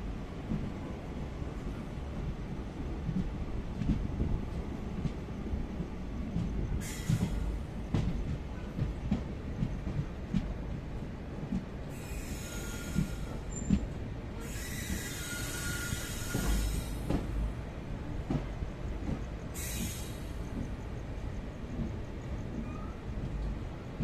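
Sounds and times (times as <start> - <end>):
train rumbling on tracks: 0.0 - 24.0
wheel squeal: 14.4 - 17.0.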